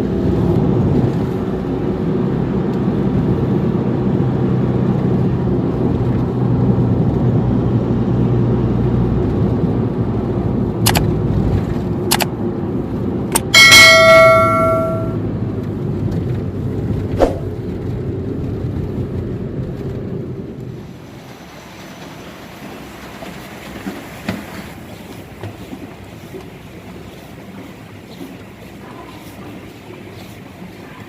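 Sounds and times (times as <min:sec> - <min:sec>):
sharp clicks: 0:10.9 - 0:11.1
bell-like metallic ring: 0:13.4 - 0:15.2.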